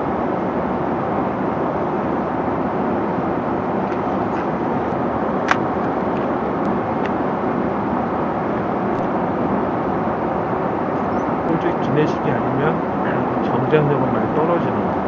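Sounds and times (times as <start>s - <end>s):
airliner cabin noise: 0.0s - 15.0s.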